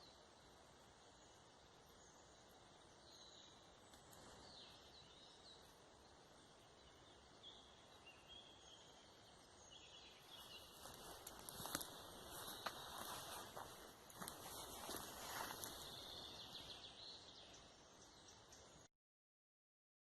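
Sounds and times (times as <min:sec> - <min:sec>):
steady low hiss: 0:00.0 - 0:18.9
bird chirps: 0:01.9 - 0:18.9
rustling: 0:10.4 - 0:16.1.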